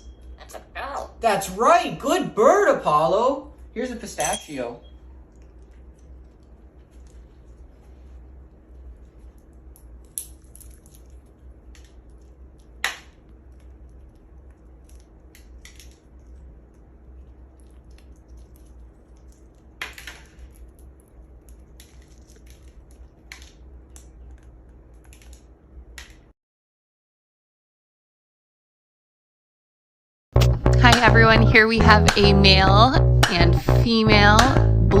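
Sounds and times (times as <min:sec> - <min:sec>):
faint low hum: 0:00.0 - 0:26.3
parrot cracking a nut: 0:09.4 - 0:26.3.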